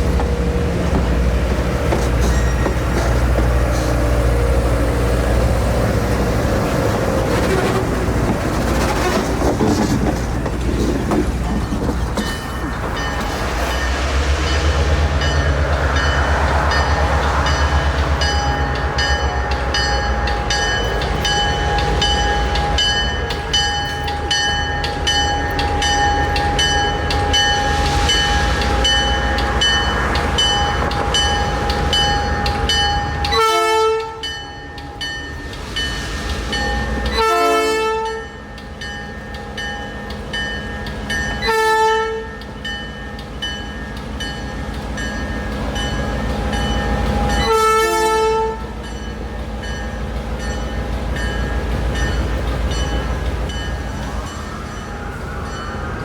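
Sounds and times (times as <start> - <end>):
wheels clicking over rail joints: 0.0 - 4.1, 5.9 - 13.7
train rumbling: 0.0 - 56.0
locomotive horn blasts: 33.3 - 34.3, 37.1 - 38.4, 41.4 - 42.4, 47.4 - 48.8.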